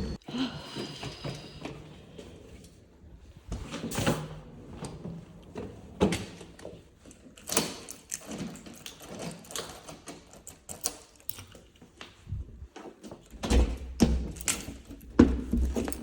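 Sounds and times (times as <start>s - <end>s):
clicks and knocks of handling: 6.0s - 16.0s.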